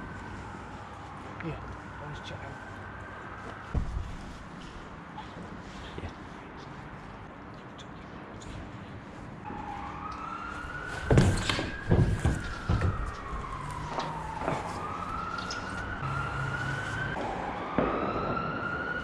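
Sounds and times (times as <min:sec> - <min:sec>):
emergency vehicle siren wailing: 0:00.0 - 0:05.5, 0:09.4 - 0:19.0.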